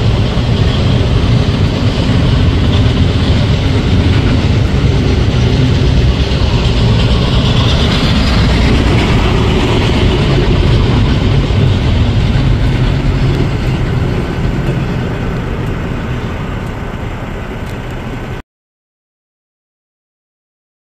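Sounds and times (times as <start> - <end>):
train wheels on rails: 0.0 - 18.4.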